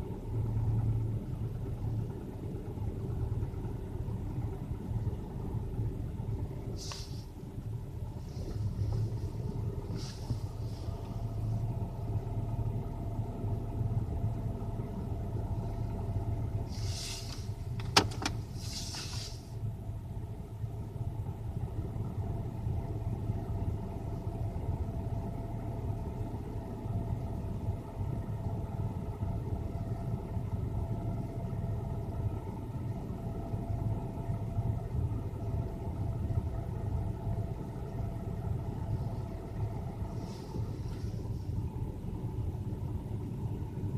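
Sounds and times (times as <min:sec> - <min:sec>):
car engine idling: 0:00.0 - 0:43.9
faint steady whine: 0:00.0 - 0:43.9
short hisses: 0:06.7 - 0:07.4, 0:16.7 - 0:17.5, 0:18.5 - 0:19.6.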